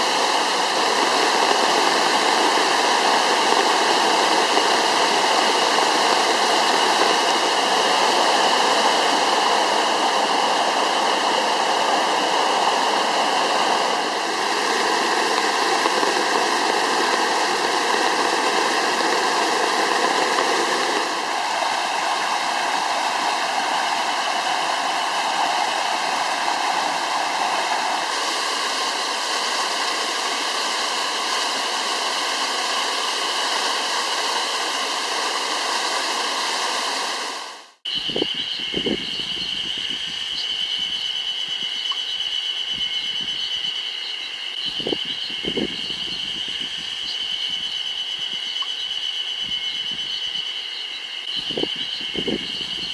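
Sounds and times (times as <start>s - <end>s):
waterfall rushing: 0.0s - 37.8s.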